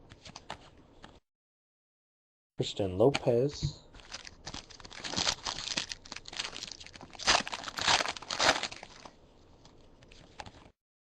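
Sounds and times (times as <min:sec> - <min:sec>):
foil wrapper tearing and crinkling: 0:04.0 - 0:09.2.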